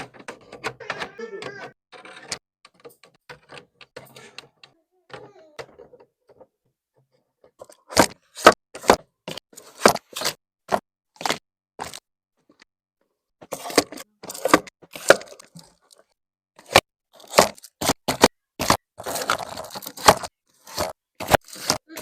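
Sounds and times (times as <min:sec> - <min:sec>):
plastic clicks and knocks: 0:00.0 - 0:12.7.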